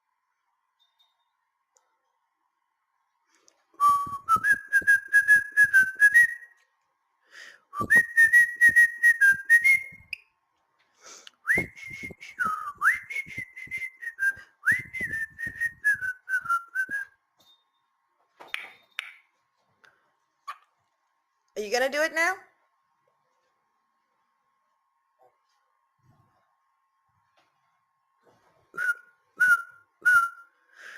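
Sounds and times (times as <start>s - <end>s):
cockatiel whistling a tune: 28.8s - 30.5s.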